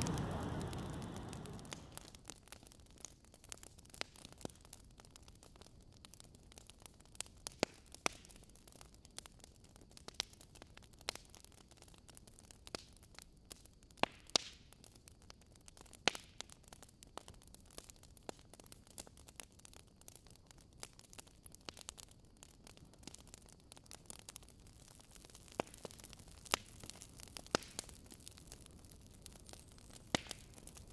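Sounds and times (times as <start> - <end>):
faint steady hiss: 0.0 - 30.9.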